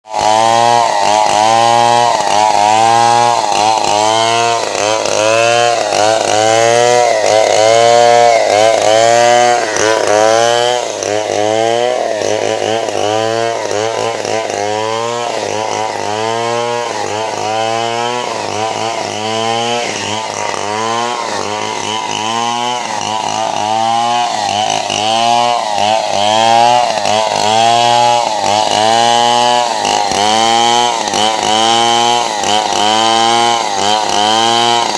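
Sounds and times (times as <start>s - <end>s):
chainsaw sawing log: 0.0s - 34.9s.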